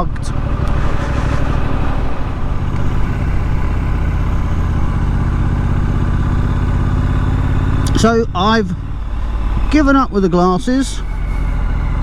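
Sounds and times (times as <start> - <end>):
motorcycle engine running: 0.0 - 12.0
wind rushing: 0.3 - 6.1, 8.0 - 12.0.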